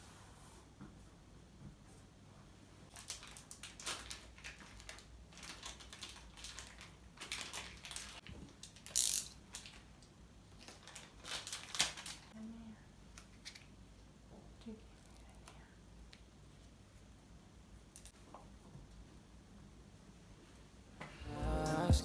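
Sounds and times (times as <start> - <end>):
paper crinkling and crackling: 2.9 - 8.9, 10.6 - 12.4
sharp paper crack: 2.9 - 9.8, 10.7 - 12.3.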